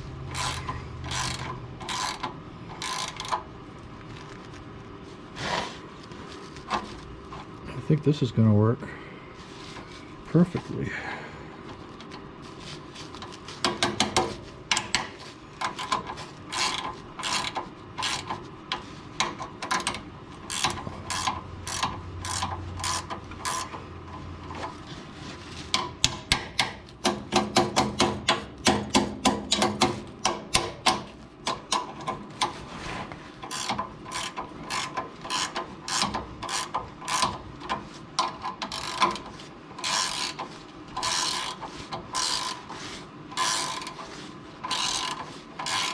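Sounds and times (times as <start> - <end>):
ratchet wrench clicking: 0.3 - 3.4, 15.6 - 23.8, 33.4 - 42.7, 43.4 - 44.0, 44.6 - 45.9.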